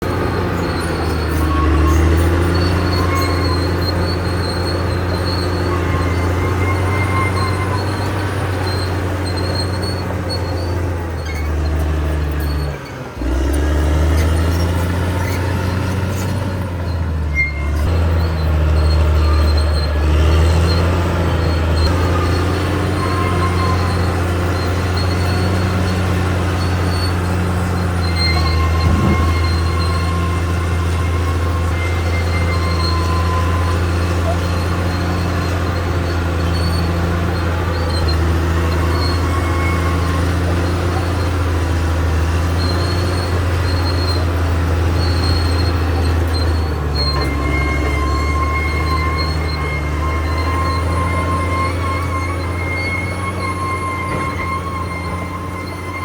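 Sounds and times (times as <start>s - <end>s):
bulldozer diesel engine: 0.0s - 56.0s
steel crawler tracks squeaking: 0.0s - 56.0s.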